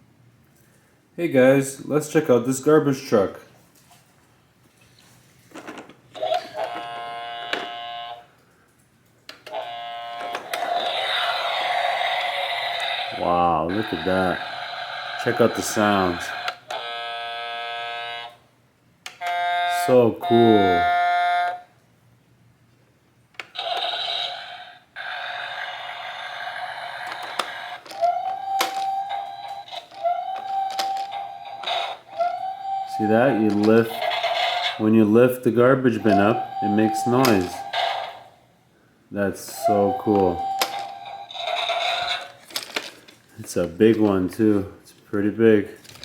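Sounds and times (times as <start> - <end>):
toy electronic buzzing tone: 6.2 - 8.3, 9.5 - 18.4, 19.2 - 21.7, 23.5 - 34.9, 35.9 - 38.3, 39.5 - 42.3
plastic parts clicking: 27.0 - 32.0, 33.0 - 34.7, 40.1 - 44.2
steady electronic tones: 32.5 - 38.3.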